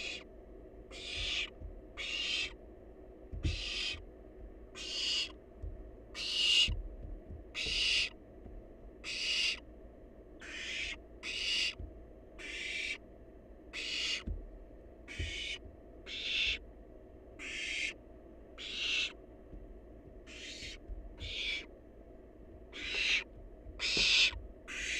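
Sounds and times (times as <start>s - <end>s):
owl nestling hissing calls: 0.0s - 0.2s, 0.9s - 2.6s, 3.5s - 4.0s, 4.8s - 5.4s, 6.2s - 6.8s, 7.6s - 8.2s, 9.0s - 9.6s, 10.4s - 11.8s, 12.4s - 13.0s, 13.7s - 14.2s, 15.1s - 16.6s, 17.4s - 17.9s, 18.6s - 19.2s, 20.3s - 21.7s, 22.8s - 24.9s.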